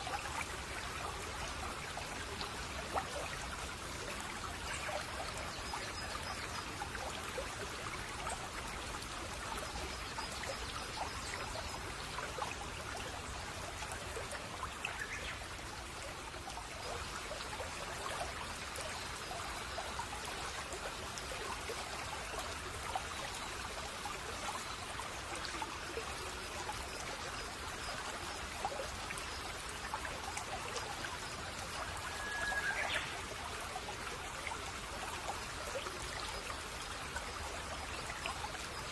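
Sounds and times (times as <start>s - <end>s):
brook babbling over stones: 0.0s - 38.9s
bird call: 32.1s - 33.0s.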